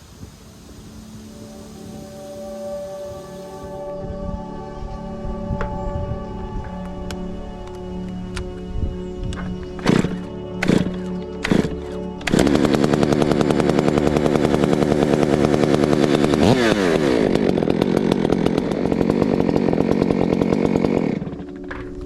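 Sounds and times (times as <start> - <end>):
chainsaw running: 0.0 - 3.9, 9.4 - 22.0.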